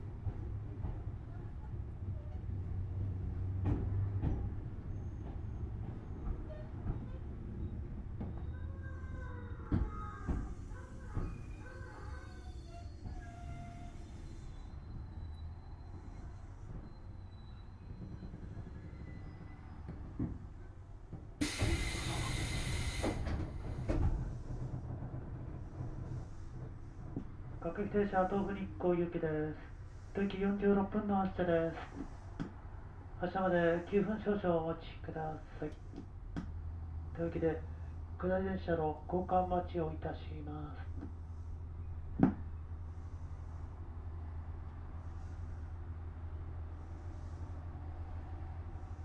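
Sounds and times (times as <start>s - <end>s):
electric train rumbling: 0.0s - 49.0s
compressed air hiss: 21.4s - 23.4s.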